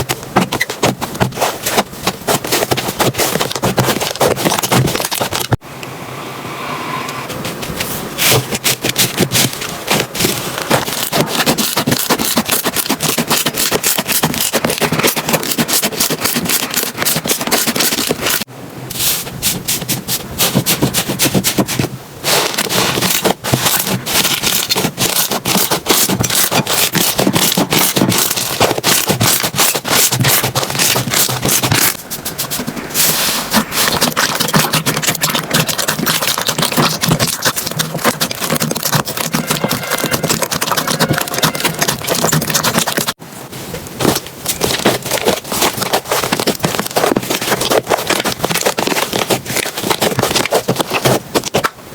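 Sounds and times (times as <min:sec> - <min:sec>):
slime crackling and popping: 0:08.3 - 0:18.5, 0:22.7 - 0:32.0, 0:33.6 - 0:43.2.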